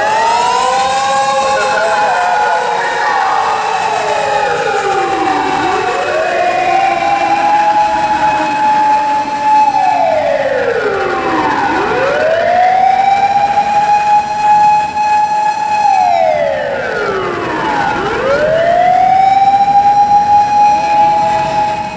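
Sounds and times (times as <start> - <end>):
fire engine siren wailing: 0.0 - 21.9.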